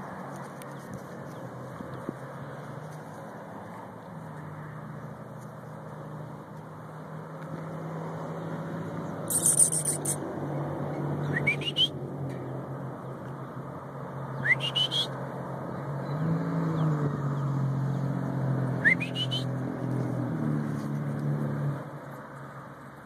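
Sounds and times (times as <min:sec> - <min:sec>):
high buzzy bird call: 0:09.3 - 0:10.2.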